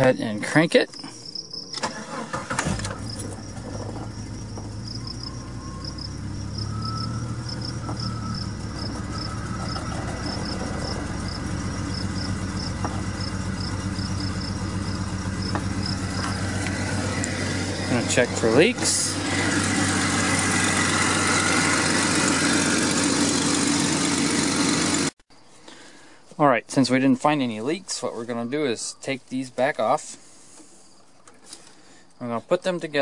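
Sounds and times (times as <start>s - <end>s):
car engine idling: 0.0s - 25.2s
car engine cranking: 0.9s - 25.2s.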